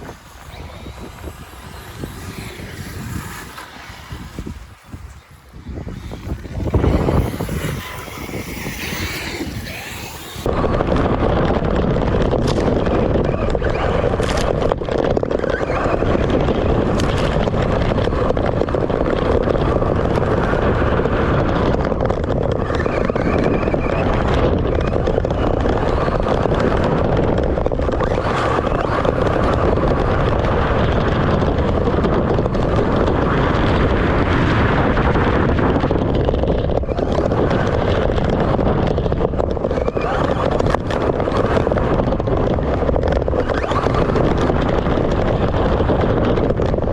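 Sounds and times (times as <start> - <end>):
remote control car motors whining: 0.0 - 10.5
wind noise on microphone: 0.0 - 46.9.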